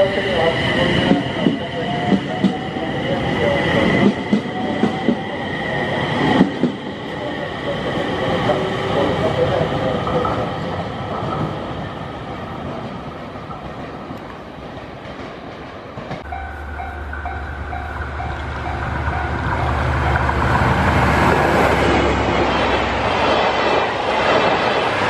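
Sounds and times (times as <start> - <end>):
diesel locomotive drone: 0.0 - 25.0
level-crossing bell ringing: 16.2 - 20.3
electric train pulling away: 16.2 - 25.0.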